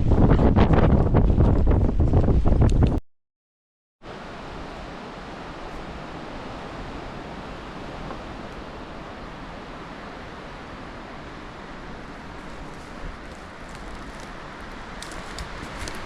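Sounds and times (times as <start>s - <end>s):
strong wind rushing: 0.0s - 3.0s.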